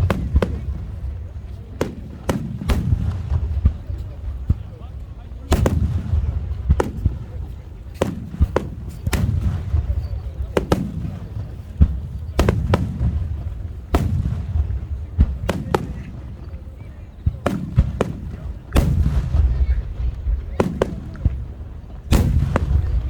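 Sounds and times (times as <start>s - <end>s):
low rumbling echo: 0.0s - 7.8s, 9.0s - 23.0s
firework shells bursting: 17.4s - 23.0s.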